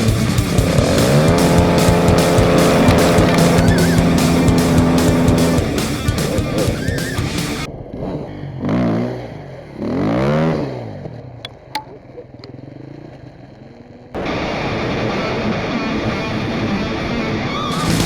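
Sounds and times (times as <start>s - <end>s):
background music: 0.0s - 7.7s
dirt bike engine revving: 0.0s - 14.6s.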